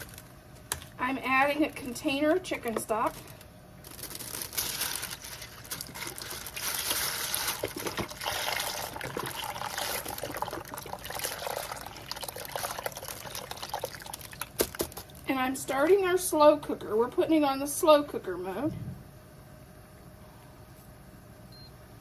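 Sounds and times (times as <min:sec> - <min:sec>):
liquid pouring into a pot: 0:06.5 - 0:15.2.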